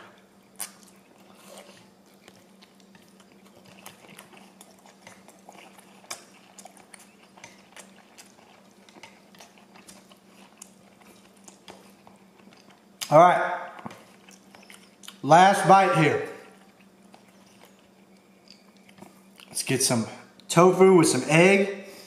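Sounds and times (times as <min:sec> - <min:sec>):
chewing noodles: 0:00.0 - 0:15.2, 0:16.2 - 0:19.6
low steady hum: 0:00.0 - 0:22.0.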